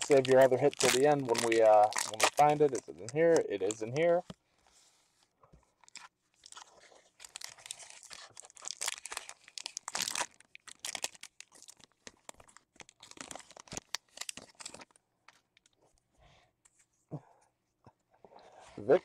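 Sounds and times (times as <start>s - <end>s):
card wrapper crinkling: 0.0s - 4.1s, 5.8s - 15.8s.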